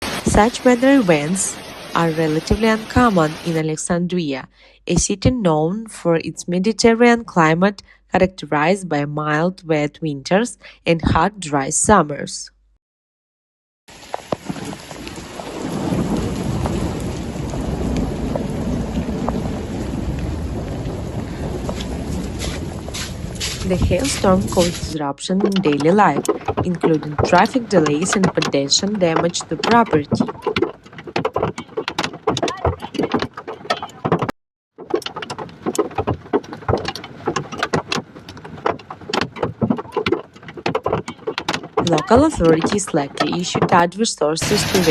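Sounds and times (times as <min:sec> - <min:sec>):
rain and hail pelting: 0:00.0 - 0:03.6, 0:13.9 - 0:25.0, 0:44.4 - 0:44.9
hailstones striking surfaces: 0:13.9 - 0:44.9
sharp knocks: 0:21.7 - 0:44.0.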